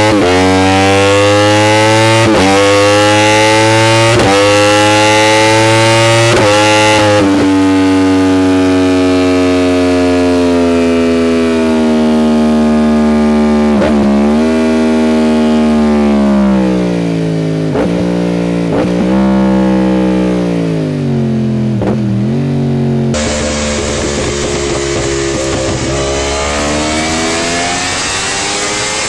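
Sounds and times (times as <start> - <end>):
motorcycle engine running: 6.0 - 28.2.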